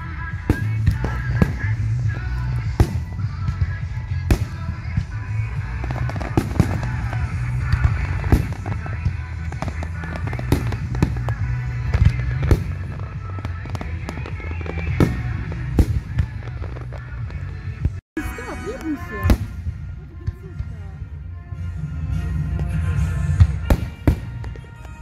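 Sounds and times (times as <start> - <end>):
music playing: 0.0 - 25.0.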